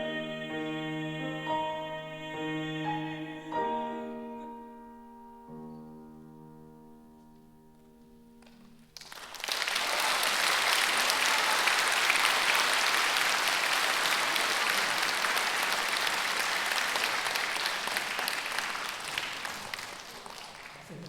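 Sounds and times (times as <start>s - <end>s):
piano chord: 0.0s - 8.6s
audience applause: 9.0s - 21.0s.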